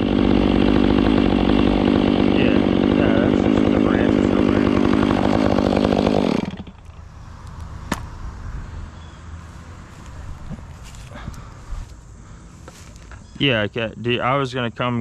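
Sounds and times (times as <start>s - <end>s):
chainsaw running: 0.0s - 8.0s.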